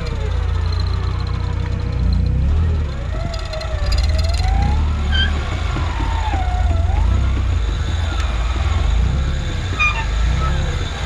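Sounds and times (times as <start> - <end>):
truck drivetrain rumble: 0.0 - 11.0
high squeak: 5.1 - 7.0, 9.8 - 10.8.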